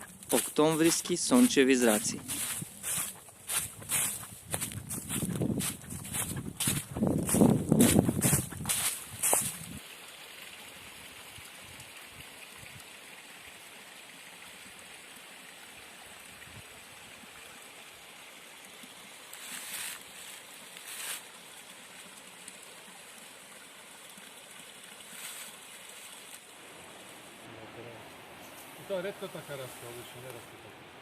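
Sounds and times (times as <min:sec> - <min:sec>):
mountain stream rushing: 0:00.0 - 0:04.7, 0:17.0 - 0:31.0
steps rustling in dry leaves: 0:00.0 - 0:09.8, 0:19.4 - 0:21.2.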